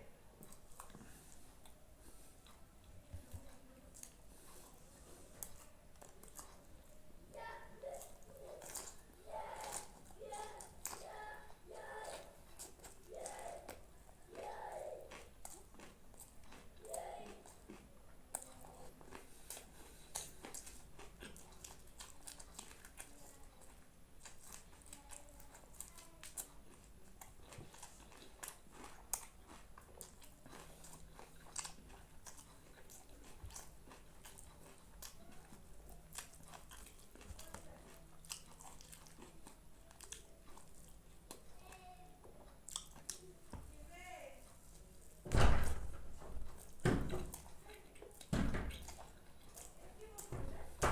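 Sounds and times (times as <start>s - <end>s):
person chewing and biting food: 0.4s - 7.0s, 7.9s - 41.7s, 42.5s - 43.3s, 46.4s - 50.4s.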